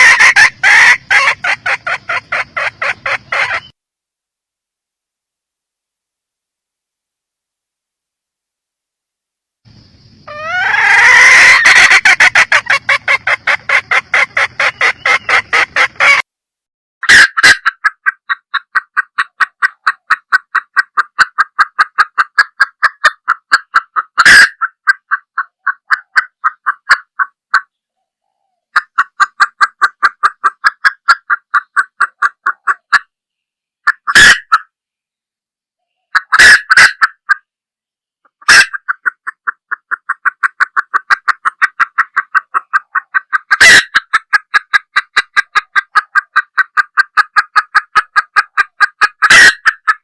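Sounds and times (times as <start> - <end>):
hen clucking rapidly: 0.0 - 3.8, 9.8 - 16.3, 17.0 - 33.1, 33.8 - 34.7, 36.0 - 37.5, 38.3 - 50.0.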